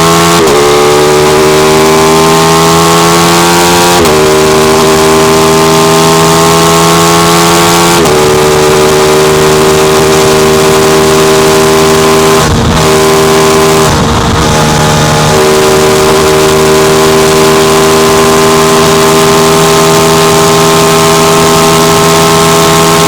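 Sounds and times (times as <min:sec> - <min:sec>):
motorcycle engine accelerating: 0:00.0 - 0:23.0
wind noise: 0:08.0 - 0:23.0.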